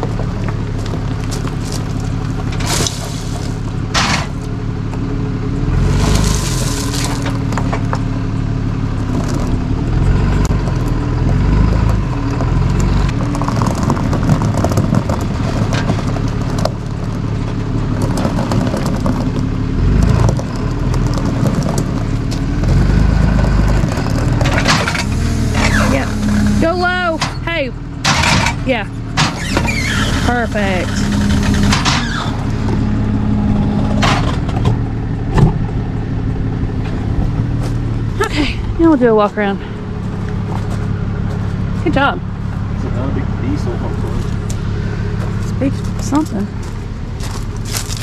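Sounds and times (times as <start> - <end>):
tow truck engine running: 0.0 - 48.0.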